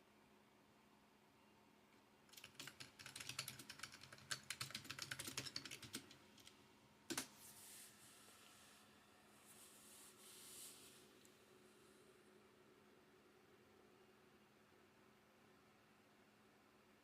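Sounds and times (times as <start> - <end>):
computer keyboard typing: 2.3 - 7.3.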